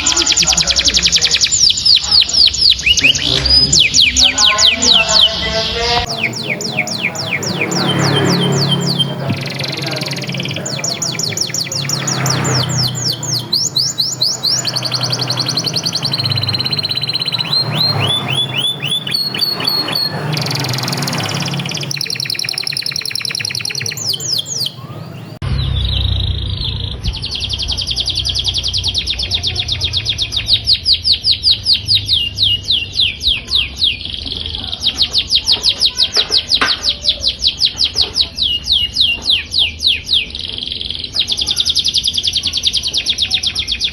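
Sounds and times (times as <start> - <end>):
canaries singing rapid trills: 0.0 - 43.9.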